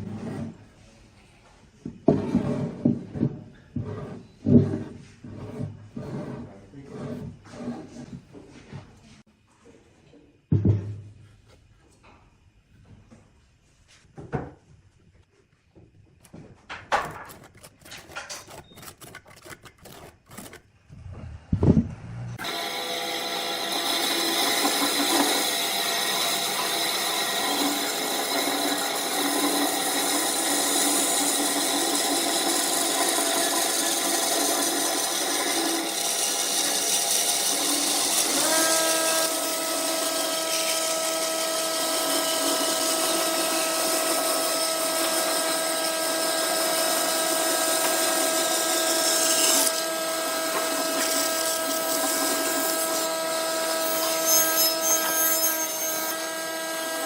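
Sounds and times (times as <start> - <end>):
tool scraping spinning wood: 0.0 - 0.6, 1.9 - 8.8, 16.2 - 46.0
lathe motor whine: 22.4 - 28.2.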